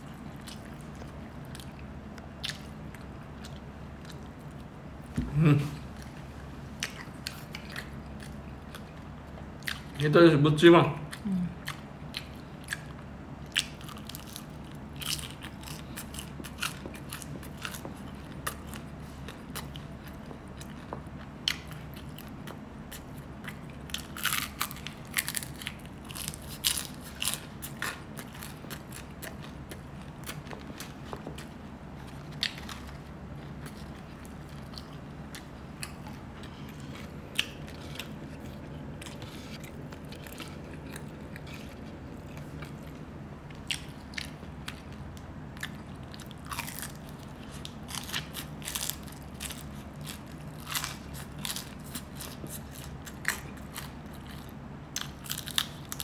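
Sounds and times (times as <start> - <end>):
person biting and chewing food: 0.0 - 10.0, 11.1 - 56.0
crunchy crackles: 11.7 - 56.0.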